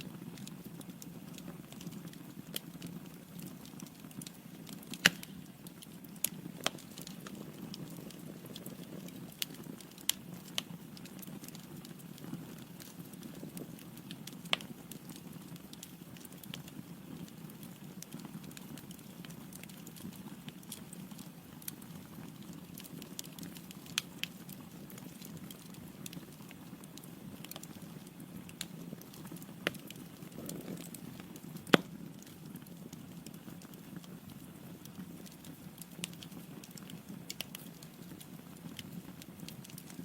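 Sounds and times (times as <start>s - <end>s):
crackles and pops of burning logs: 0.0s - 40.0s
low rush of flames: 1.3s - 15.8s, 17.2s - 40.0s.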